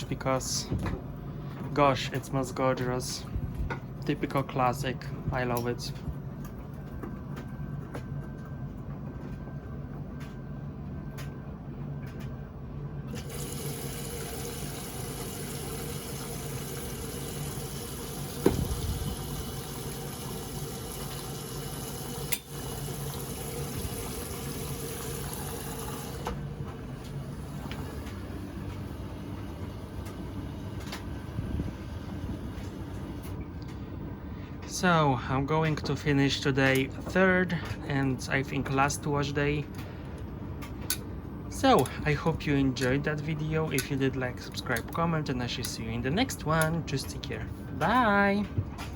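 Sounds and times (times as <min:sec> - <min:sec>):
low machine hum: 0:00.0 - 0:48.9
water rushing into washing machine: 0:13.1 - 0:33.4.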